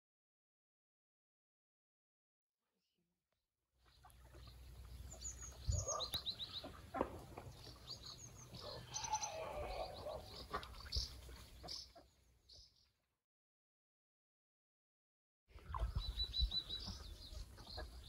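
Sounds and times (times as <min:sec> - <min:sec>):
small birds chirping: 0:03.8 - 0:13.0, 0:15.6 - 0:18.0.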